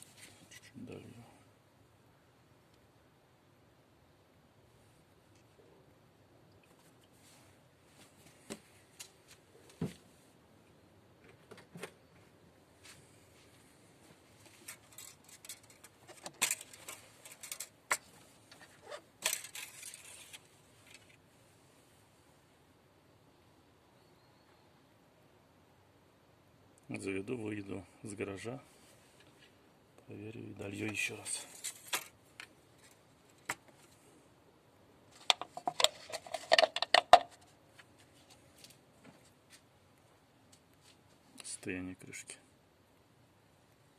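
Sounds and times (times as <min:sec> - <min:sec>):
small hard parts clicking and rattling: 0:14.6 - 0:21.2, 0:35.1 - 0:37.4
small hard objects clicking: 0:35.2 - 0:37.3.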